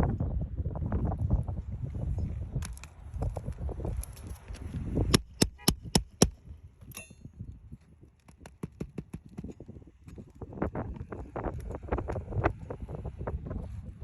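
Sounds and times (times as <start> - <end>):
hammer striking a roof: 5.1 - 6.4.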